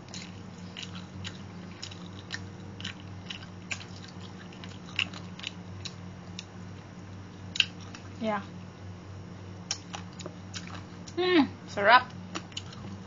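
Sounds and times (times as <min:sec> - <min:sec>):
chewing with wet mouth clicks: 0:00.0 - 0:06.5, 0:07.5 - 0:08.1, 0:09.7 - 0:11.2, 0:12.3 - 0:13.0
steady low hum: 0:00.0 - 0:13.0.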